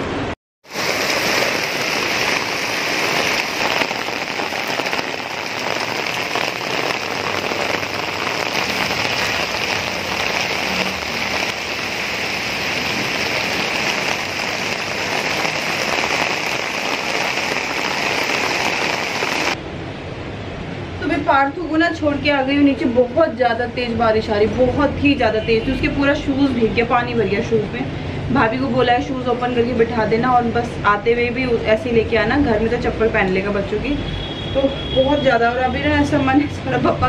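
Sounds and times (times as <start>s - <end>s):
heavy rain on hard surfaces: 0.6s - 21.0s.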